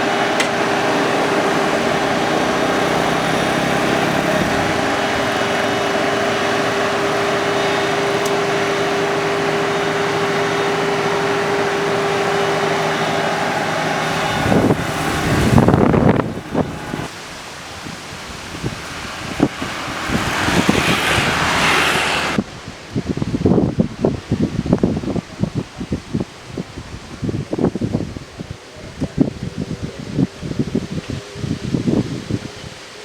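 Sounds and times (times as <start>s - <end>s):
diesel engine running: 0.0s - 22.4s
steady whine: 0.0s - 22.4s
wind buffeting microphone: 0.0s - 33.0s.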